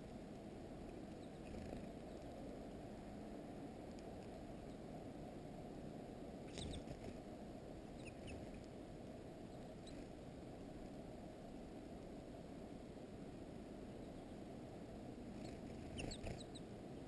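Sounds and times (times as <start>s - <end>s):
low background rumble: 0.0s - 17.0s
songbird call notes: 6.5s - 7.0s, 7.9s - 8.6s, 15.4s - 17.0s.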